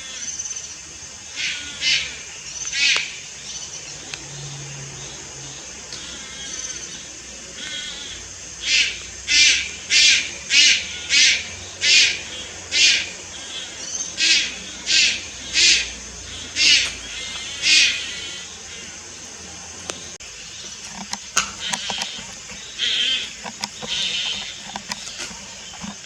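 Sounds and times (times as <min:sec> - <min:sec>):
heron harsh hissing calls: 0:20.6 - 0:26.0.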